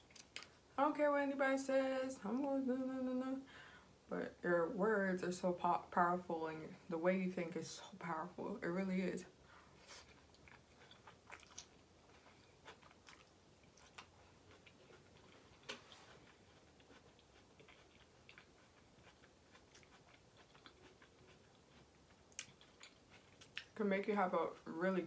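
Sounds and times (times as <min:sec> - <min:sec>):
close-up chewing noodles: 0:10.0 - 0:23.8.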